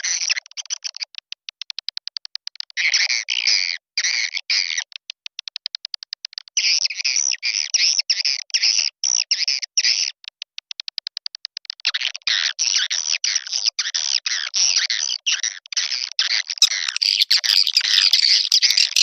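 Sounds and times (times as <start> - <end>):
high chirping twitter: 16.6 - 19.0.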